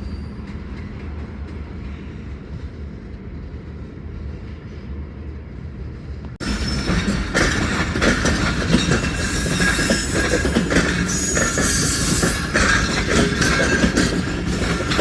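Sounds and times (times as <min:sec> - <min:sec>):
train wheels clacking: 0:06.3 - 0:15.0
wheel squeal: 0:06.4 - 0:15.0.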